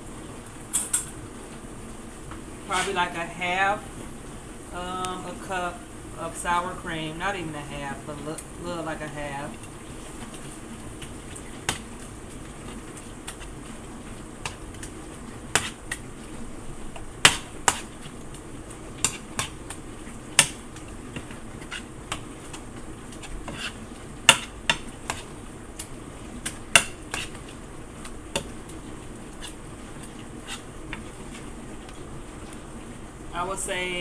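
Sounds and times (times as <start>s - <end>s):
steady background noise: 0.0s - 34.0s.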